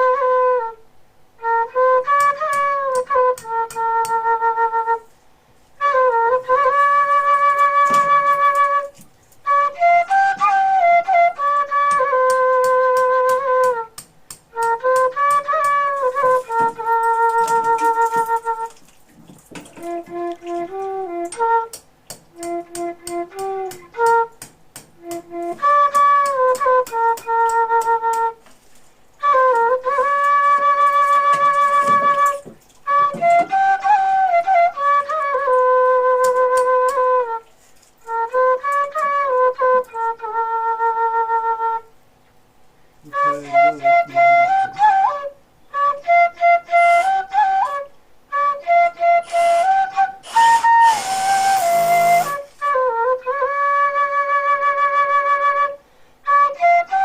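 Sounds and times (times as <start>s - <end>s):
flute-like melody: 0.0s - 28.6s, 29.2s - 42.1s, 43.0s - 57.0s.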